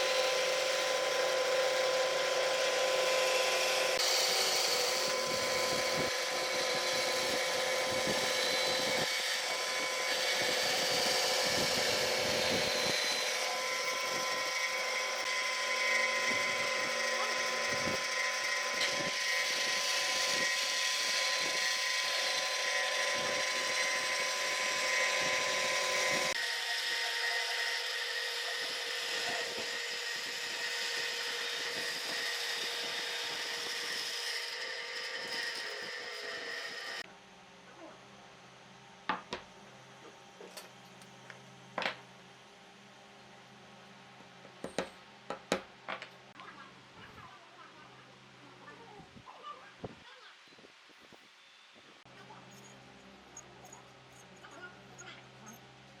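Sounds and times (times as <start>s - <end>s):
electric power tool on wood: 0.0s - 37.1s.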